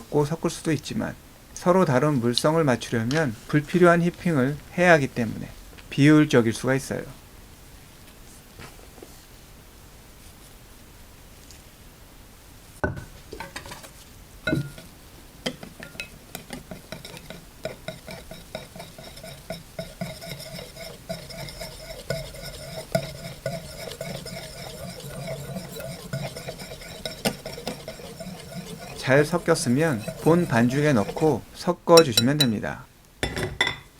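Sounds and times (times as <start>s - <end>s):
stirring strokes in bowl: 13.9s - 32.8s
utensil clinking against bowl: 14.5s - 14.9s, 15.5s - 31.4s, 32.0s - 32.6s.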